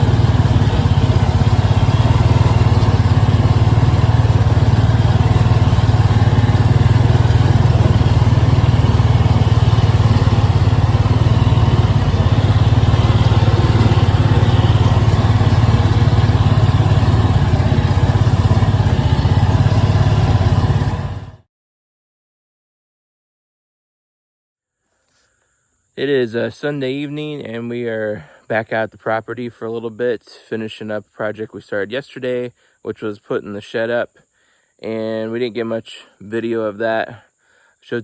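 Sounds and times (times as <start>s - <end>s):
combustion engine running steadily: 0.0s - 21.4s.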